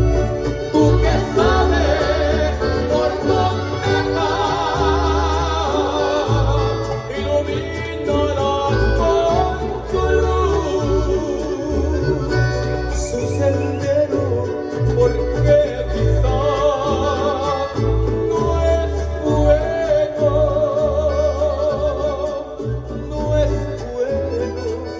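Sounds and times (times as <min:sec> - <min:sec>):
bass notes: 0:00.0 - 0:24.9
man singing with vibrato: 0:00.0 - 0:24.9
strummed strings: 0:00.0 - 0:24.9.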